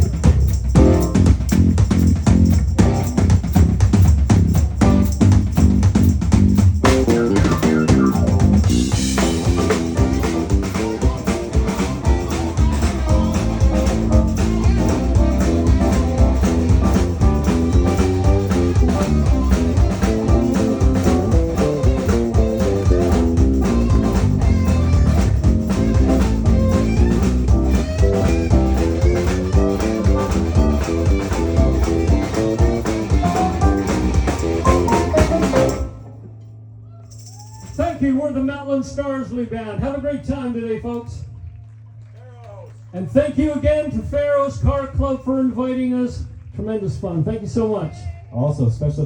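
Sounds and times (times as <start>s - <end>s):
live band playing: 0.0s - 36.3s.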